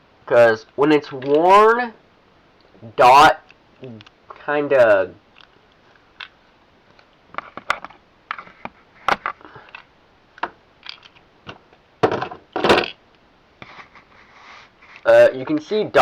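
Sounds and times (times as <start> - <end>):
plastic parts clicking and knocking: 1.0 - 1.5, 6.2 - 13.0.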